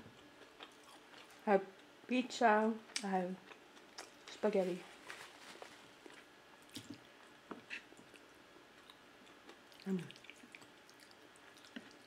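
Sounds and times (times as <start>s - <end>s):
chewing mouth sounds: 6.1s - 12.0s.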